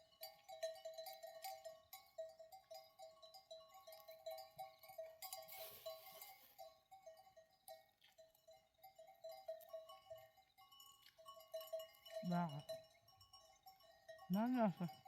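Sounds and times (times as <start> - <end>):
sheep bells clinking: 0.0 - 15.0
brief hiss: 5.5 - 6.5.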